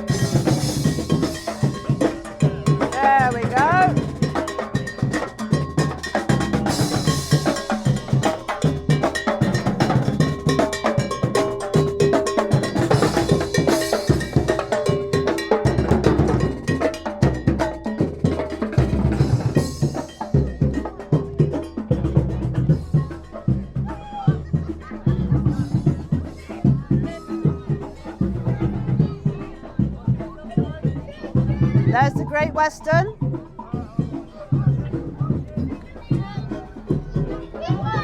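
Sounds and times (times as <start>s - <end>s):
cowbell clanging: 0.0s - 38.0s
drum band playing: 0.0s - 38.0s.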